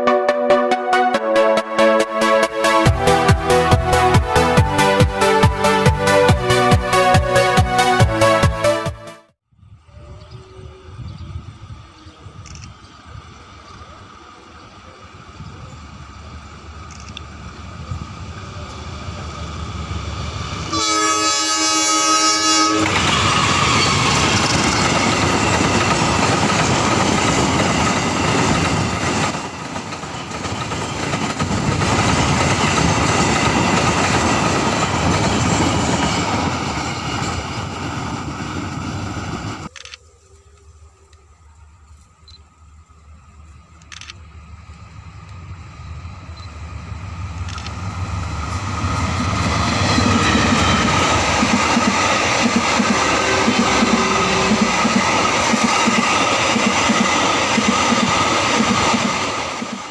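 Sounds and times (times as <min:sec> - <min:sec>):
train engine passing: 0:00.0 - 0:08.7, 0:09.6 - 0:59.9
locomotive horn blast: 0:00.0 - 0:09.2, 0:20.7 - 0:23.0, 0:52.9 - 0:55.0
train wheels on rails: 0:11.0 - 0:40.0, 0:41.9 - 0:59.9.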